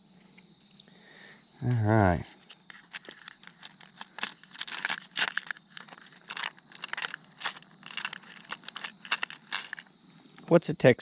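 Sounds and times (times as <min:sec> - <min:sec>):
plastic packaging crinkling: 0:02.7 - 0:09.9.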